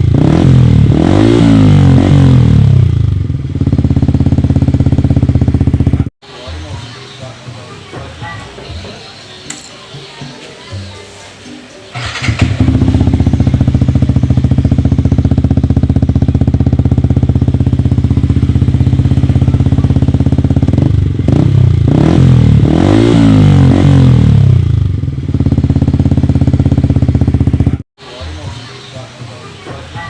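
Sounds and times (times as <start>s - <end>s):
motorcycle engine idling and revving: 0.0s - 6.8s, 11.9s - 27.8s.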